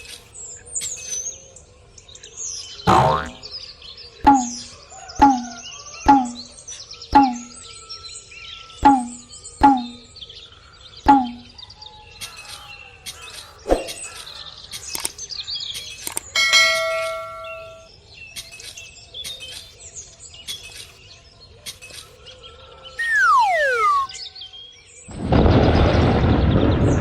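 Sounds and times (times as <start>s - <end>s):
chirping: 7.2s - 7.6s, 23.0s - 24.1s
bell-like ding: 11.1s - 11.5s, 16.4s - 17.9s
falling whistle-like glide: 23.0s - 24.2s.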